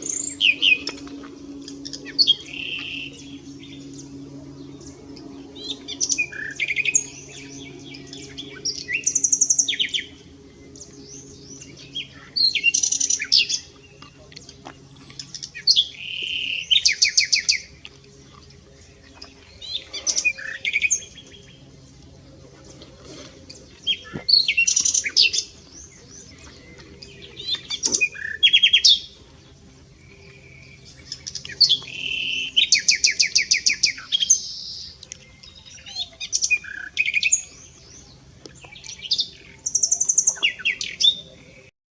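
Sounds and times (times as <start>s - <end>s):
nightingale singing: 30.2s - 41.3s.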